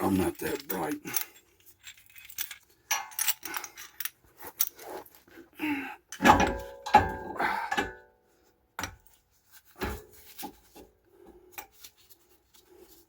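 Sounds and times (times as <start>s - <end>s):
metal hand tools clinking: 0.1s - 4.8s.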